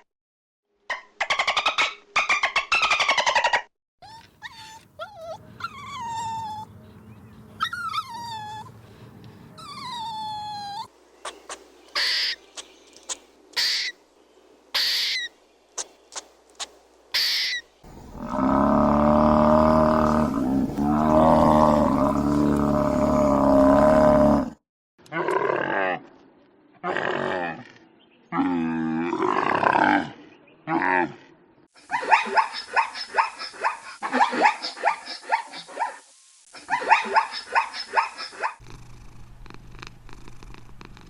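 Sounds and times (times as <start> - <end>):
drawn-out falling animal calls: 9.6 - 14.0, 14.7 - 24.5
deep sustained roaring call: 17.9 - 24.6.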